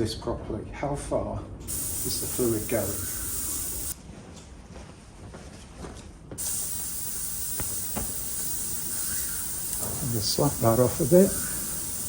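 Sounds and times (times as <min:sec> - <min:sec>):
ultrasonic cleaner hissing: 0:01.7 - 0:04.0, 0:06.4 - 0:12.0
small parts clicking: 0:06.4 - 0:12.0.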